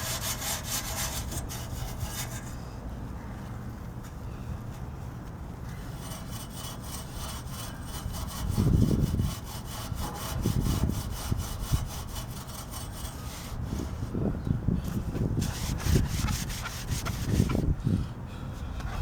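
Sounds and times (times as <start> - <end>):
scrubbing on steel frame: 5.8 - 14.1, 14.9 - 17.7.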